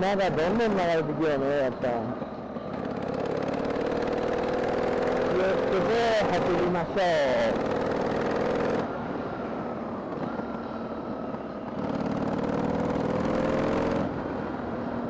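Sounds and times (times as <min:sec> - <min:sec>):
motorcycle engine running: 0:02.0 - 0:08.9, 0:11.6 - 0:15.0.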